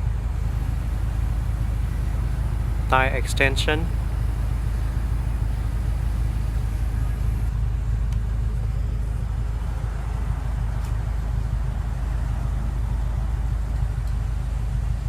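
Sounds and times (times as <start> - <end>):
car engine idling: 0.4 - 7.5.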